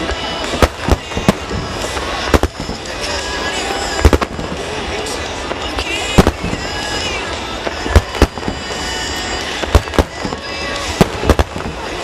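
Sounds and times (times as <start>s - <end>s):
firework shells booming: 0.4s - 3.0s, 4.0s - 4.7s, 7.8s - 12.0s.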